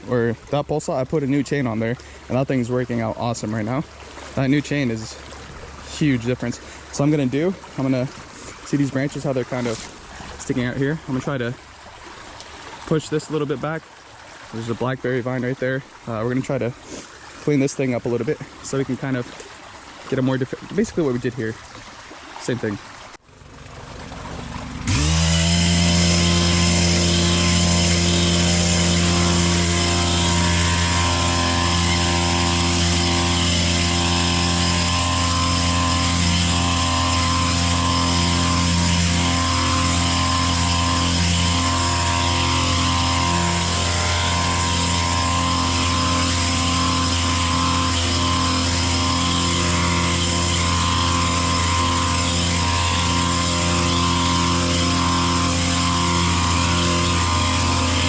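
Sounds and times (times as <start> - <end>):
small four-stroke engine running: 0.0 - 11.5, 23.3 - 58.0.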